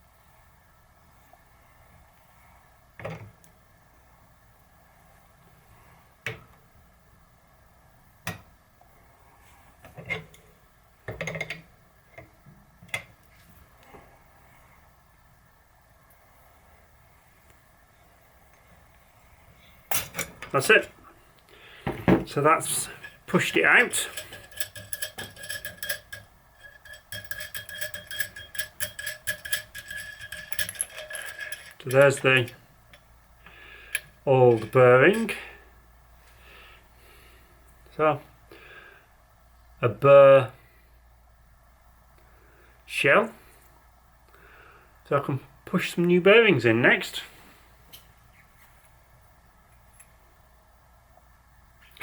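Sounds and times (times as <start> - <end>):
steel parts clicking and clinking: 19.9 - 21.0, 22.3 - 33.1, 33.9 - 35.5.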